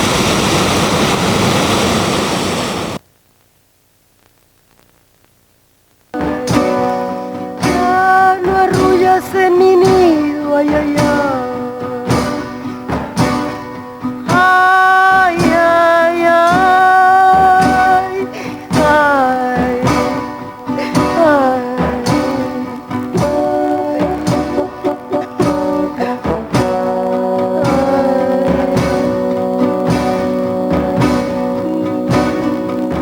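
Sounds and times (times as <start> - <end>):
person singing long notes: 6.2 - 13.3, 14.2 - 33.0
plucked strings: 6.2 - 33.0.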